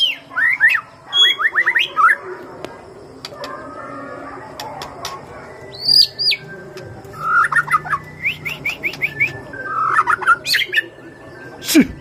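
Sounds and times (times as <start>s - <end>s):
bird singing whistled notes: 0.0s - 2.2s, 5.1s - 12.0s.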